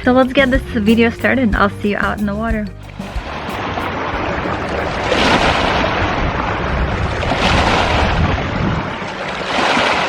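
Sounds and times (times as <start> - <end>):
river flowing: 2.7 - 10.0
wind buffeting microphone: 2.9 - 10.0.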